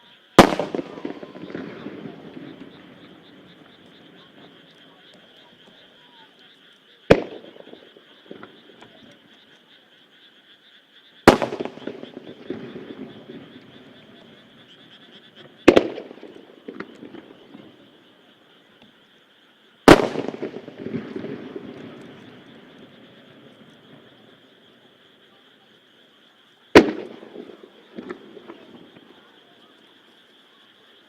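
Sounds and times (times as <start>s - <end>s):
frogs calling: 0.0s - 31.0s
firework shells bursting with echo: 0.4s - 5.2s, 7.1s - 9.1s, 11.2s - 17.8s, 19.9s - 24.7s, 26.7s - 29.2s.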